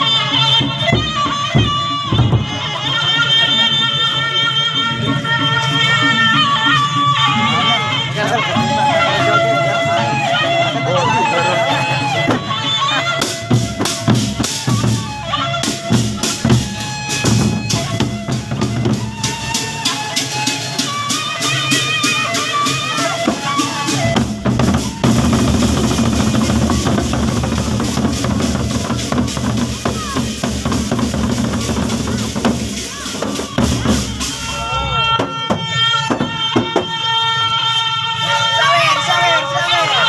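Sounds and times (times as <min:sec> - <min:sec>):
wind instrument melody: 0:00.0 - 0:40.0
barrel drums beating: 0:12.2 - 0:37.0.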